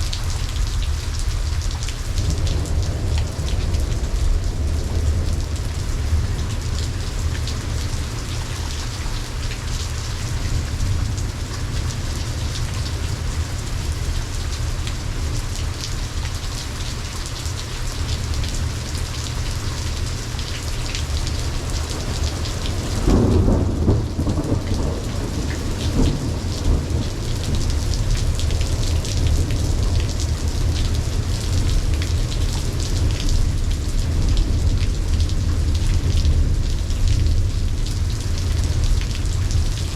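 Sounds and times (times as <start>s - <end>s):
thunderclap and rumble: 0.0s - 15.6s, 21.0s - 39.9s
steady rain falling: 0.0s - 39.9s.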